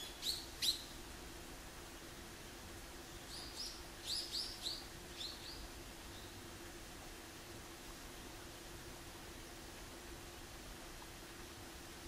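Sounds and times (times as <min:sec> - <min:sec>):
high thin bird calls: 0:00.0 - 0:00.9
faint steady hum: 0:00.0 - 0:12.0.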